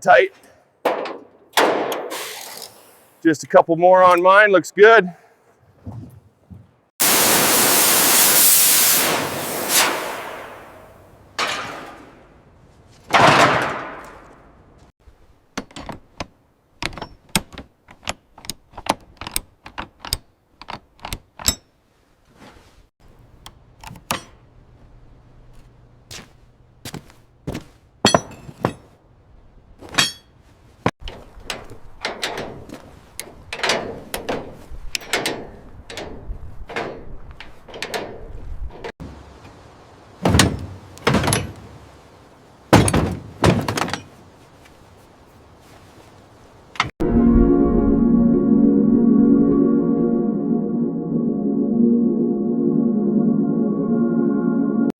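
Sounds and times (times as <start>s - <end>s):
metal tools clanking: 28.0s - 28.9s, 30.0s - 30.4s, 42.8s - 44.2s.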